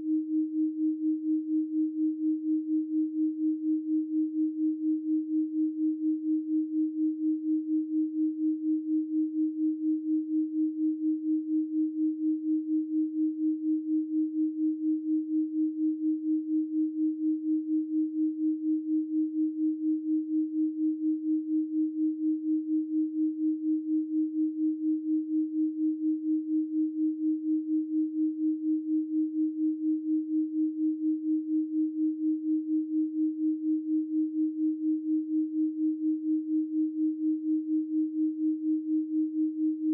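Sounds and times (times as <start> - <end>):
pulsing electronic sine tone: 8.2 - 39.9.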